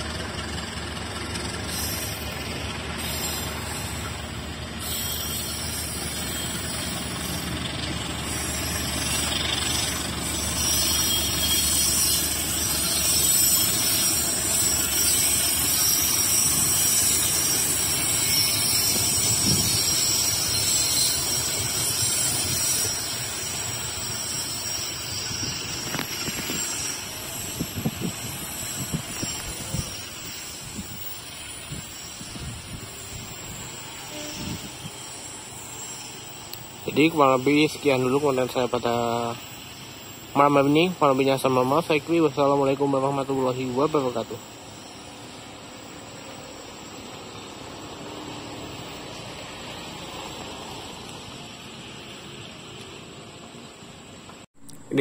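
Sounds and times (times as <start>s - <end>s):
train coaches rumbling on rails: 0.0s - 55.0s
high hiss: 1.6s - 55.0s.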